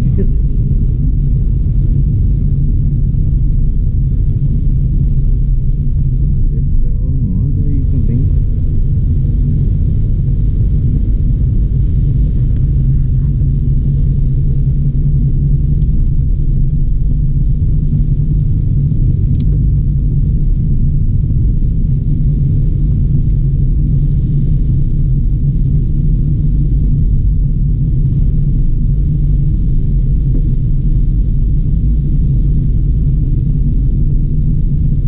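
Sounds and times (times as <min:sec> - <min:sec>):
car road noise: 0:00.0 - 0:25.4
car engine rumble: 0:00.0 - 0:35.0.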